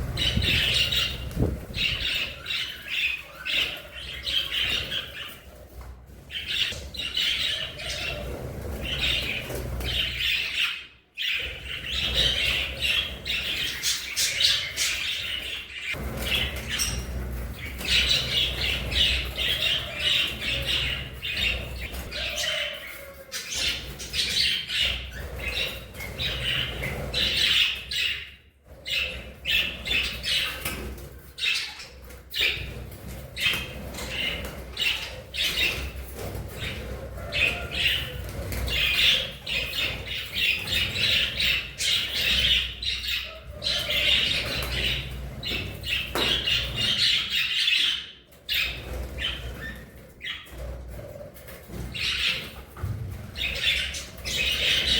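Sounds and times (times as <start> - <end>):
budgerigars chattering: 53.4 - 54.9.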